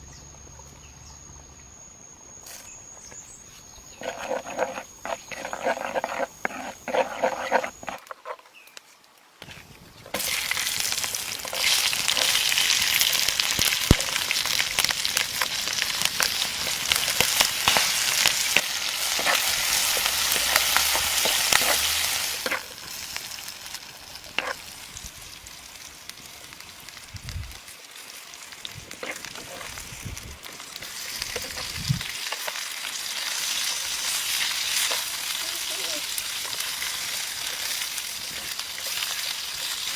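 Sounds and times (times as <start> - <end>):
stirring clicks: 3.9 - 8.9
frying in hot oil sizzling: 9.4 - 39.9.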